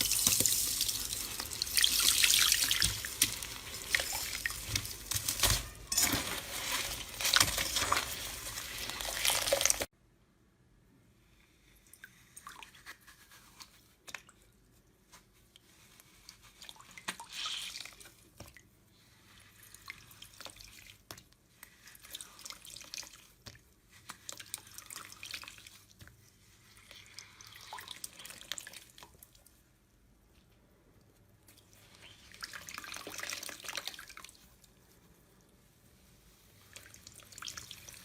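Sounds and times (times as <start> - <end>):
slime squelching by hand: 0.0 - 9.9.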